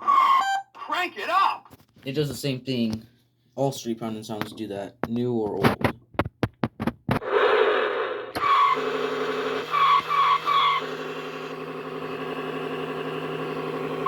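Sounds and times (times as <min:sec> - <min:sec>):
toy tire screeches: 0:00.0 - 0:00.9, 0:07.2 - 0:12.3
toy engine hum sound effect: 0:00.1 - 0:00.6, 0:07.2 - 0:14.0.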